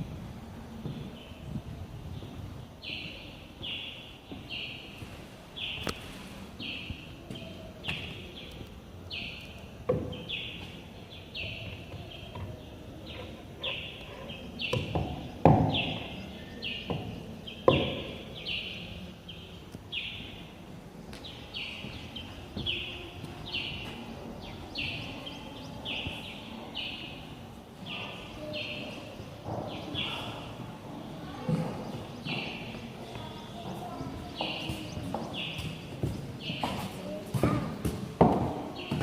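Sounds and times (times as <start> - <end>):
outdoor background noise: 0.0 - 39.0
bird chirping: 6.6 - 20.5, 21.2 - 30.6, 31.7 - 37.2.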